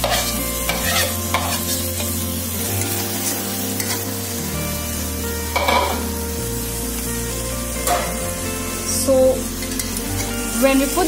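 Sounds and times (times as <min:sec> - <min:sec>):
stirring and scraping in pan: 0:00.0 - 0:04.2, 0:05.5 - 0:06.1
background music with low notes: 0:00.0 - 0:11.0
chicken sizzling in a pan: 0:00.0 - 0:11.0.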